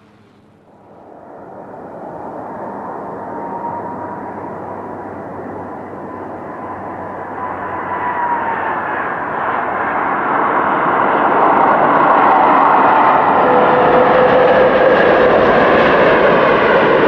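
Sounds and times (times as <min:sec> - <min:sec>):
airplane engines: 0:00.0 - 0:17.0
engine whine: 0:00.0 - 0:17.0.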